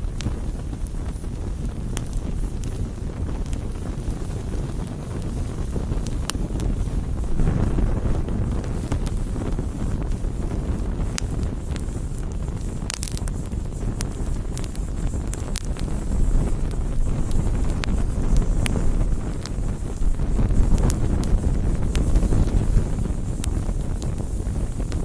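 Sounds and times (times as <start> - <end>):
campfire flames rushing: 0.0 - 25.0
fire crackling and popping: 0.0 - 25.0.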